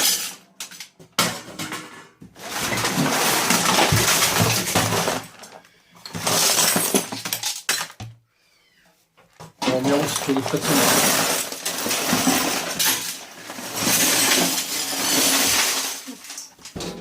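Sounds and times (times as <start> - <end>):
scrap metal pouring into metal casing: 2.4 - 7.4, 9.6 - 16.6.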